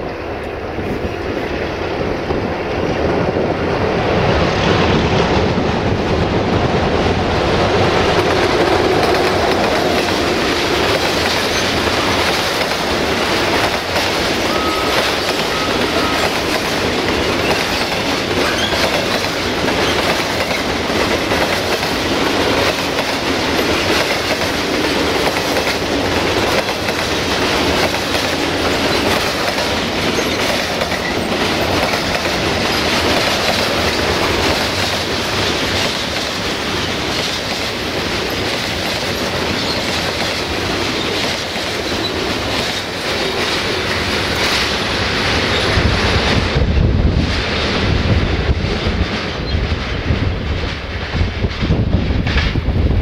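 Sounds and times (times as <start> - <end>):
train passing: 0.0 - 53.0
train cars clattering over rail joints: 7.9 - 46.4.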